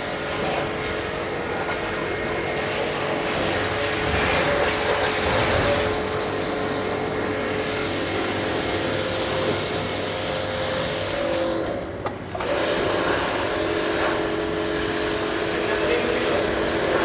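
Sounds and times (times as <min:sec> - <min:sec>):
pressure washer spray hissing: 0:12.4 - 0:17.0.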